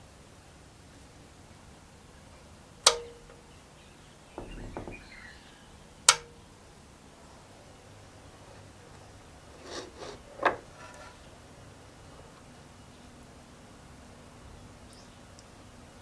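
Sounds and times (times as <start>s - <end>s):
sharp clicks with ringing tone: 2.9s - 3.4s, 6.1s - 6.4s
soft knocks of tools handled: 2.9s - 3.4s, 4.4s - 5.2s, 6.1s - 6.4s.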